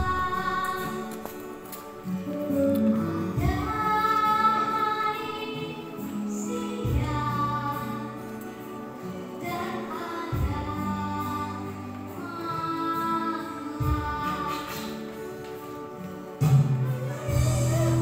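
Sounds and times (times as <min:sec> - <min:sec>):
child singing: 0:00.0 - 0:01.4, 0:03.2 - 0:08.3, 0:09.4 - 0:15.1
instrumental accompaniment: 0:00.0 - 0:18.0
low bass notes: 0:17.3 - 0:18.0.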